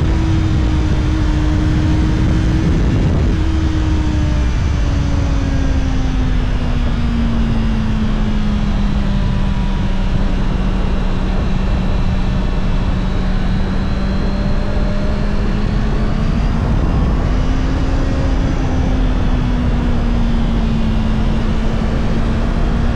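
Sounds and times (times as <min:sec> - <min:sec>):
wind rushing: 0:00.0 - 0:06.6
motorcycle engine running: 0:00.0 - 0:22.9
road noise: 0:00.0 - 0:22.9.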